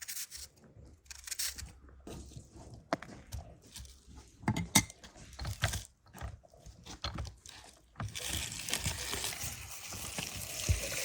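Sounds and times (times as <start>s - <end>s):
dishes and utensils clinking: 4.4s - 5.1s.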